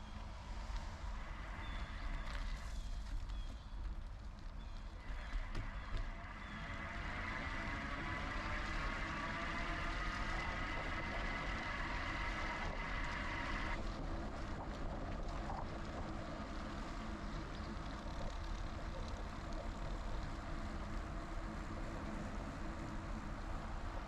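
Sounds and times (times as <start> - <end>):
wind and tyre rumble: 0.0 - 24.0
electric bike motor whine: 4.8 - 24.0.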